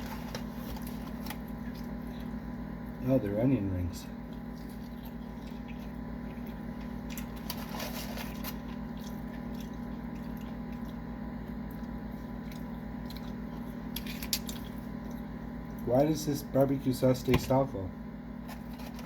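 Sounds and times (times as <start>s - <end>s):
person chewing crunchy food: 0.0s - 2.9s, 4.1s - 15.9s
steady low hum: 0.0s - 19.0s.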